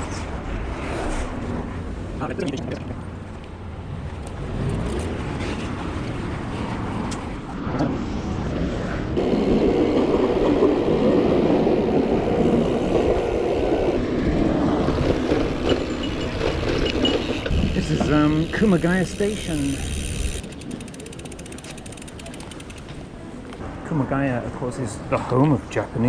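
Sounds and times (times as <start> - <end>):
road traffic noise: 9.0 - 23.6.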